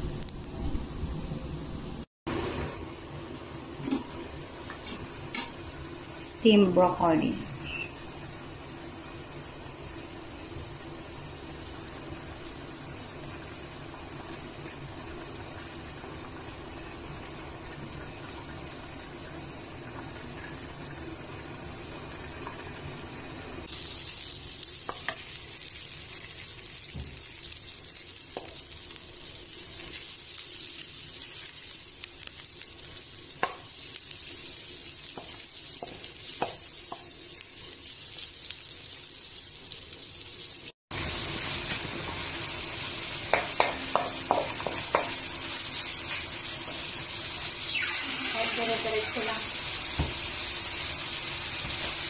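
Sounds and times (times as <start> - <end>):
food sizzling in a wok: 2.3 - 52.0
spatula knocking against pan: 43.3 - 45.2.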